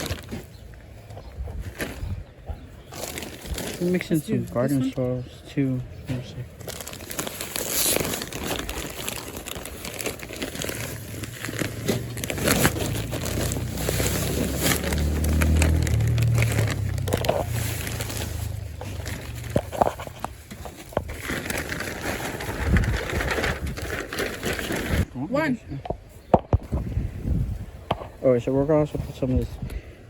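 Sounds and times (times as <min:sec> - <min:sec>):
plastic bag crinkling: 0:00.0 - 0:00.6, 0:02.9 - 0:04.7, 0:06.5 - 0:25.1.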